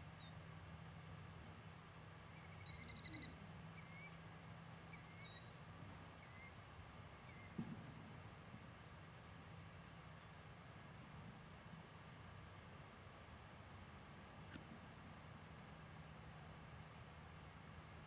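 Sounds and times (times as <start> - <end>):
faint low hum: 0.0 - 18.0
small bird trilling and chirping: 2.3 - 4.2.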